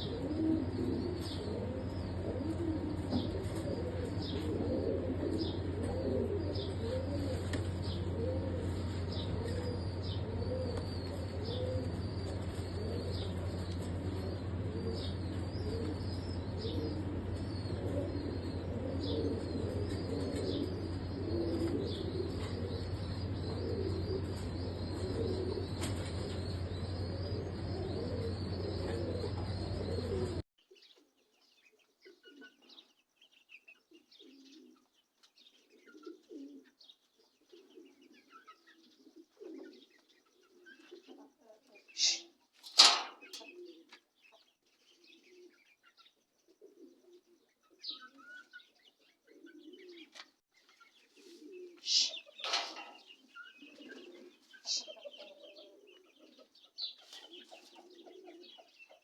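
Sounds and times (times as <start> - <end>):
low hum: 0.0 - 30.4
pigeons cooing: 0.0 - 31.0, 31.6 - 59.0
small birds chirping: 0.0 - 59.0.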